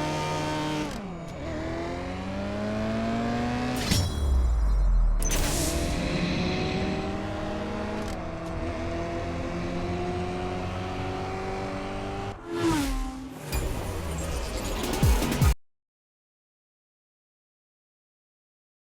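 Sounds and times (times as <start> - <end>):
car engine revving: 0.0 - 3.8, 5.8 - 13.4.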